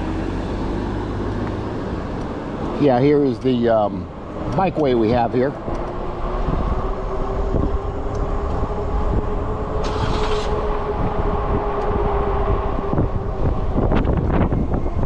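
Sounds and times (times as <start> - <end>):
wind on microphone: 4.4 - 15.0.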